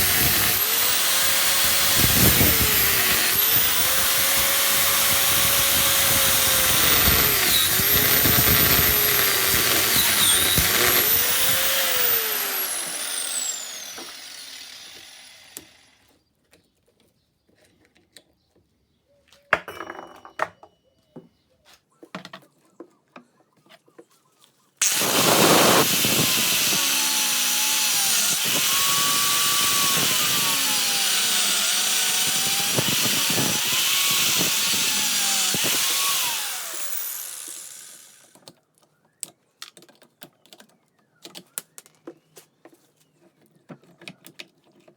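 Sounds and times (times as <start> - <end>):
grinder cutting steel: 0.0 - 16.0, 24.8 - 38.3.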